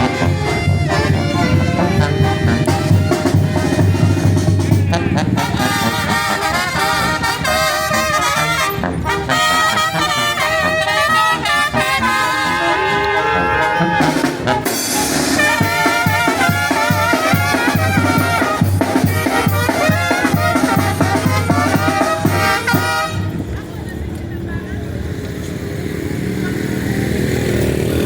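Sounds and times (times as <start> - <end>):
bass drum beat: 0.0 - 9.3, 14.0 - 23.4
trumpets and trombones melody: 0.0 - 23.6.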